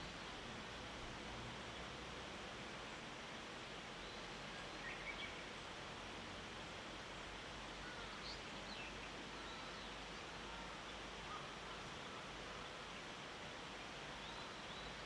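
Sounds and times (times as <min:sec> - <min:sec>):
steady hiss: 0:00.0 - 0:15.0
distant songbird chirps: 0:03.8 - 0:05.6, 0:07.8 - 0:13.2, 0:13.8 - 0:15.0.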